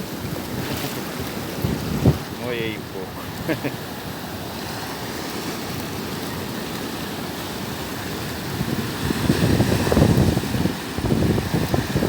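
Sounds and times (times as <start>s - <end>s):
wind buffeting microphone: 0.0s - 3.5s, 7.7s - 12.0s
waves breaking: 0.0s - 12.0s.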